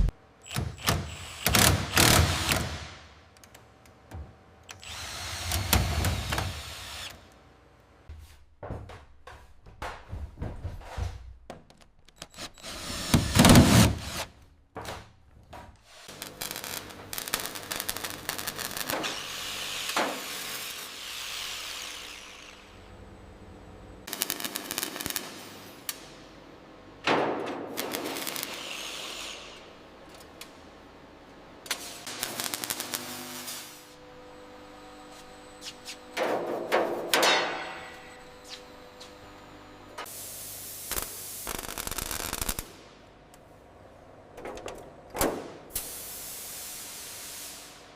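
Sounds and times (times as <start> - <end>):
power tool running: 4.7 - 7.2, 16.2 - 23.0.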